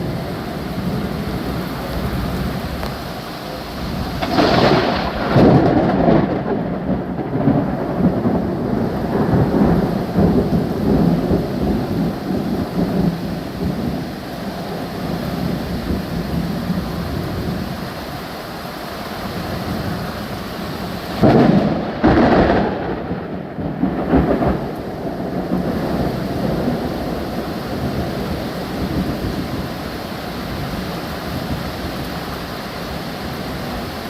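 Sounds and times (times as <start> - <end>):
steady rain: 0.0 - 34.0
thunder claps: 4.0 - 14.0, 21.1 - 29.7.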